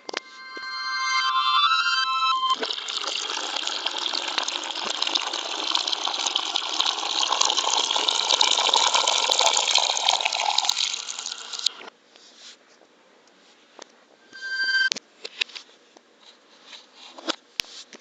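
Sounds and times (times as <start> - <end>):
water gushing: 2.6 - 11.9.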